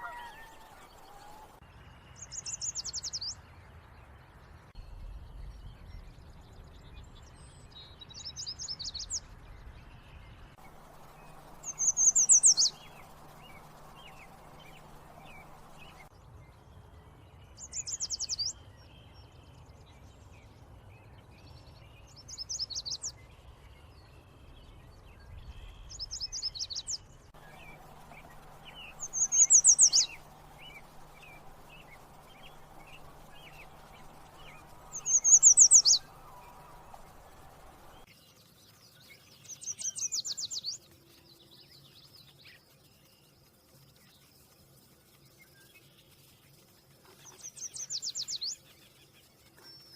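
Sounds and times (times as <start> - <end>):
warbler singing high notes: 10.6 - 16.1, 27.4 - 38.0.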